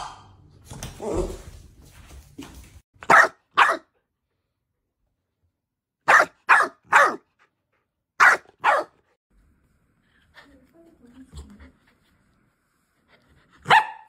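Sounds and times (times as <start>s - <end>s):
puppy barking: 3.0s - 4.0s, 6.0s - 7.3s, 8.2s - 9.0s, 13.6s - 14.0s.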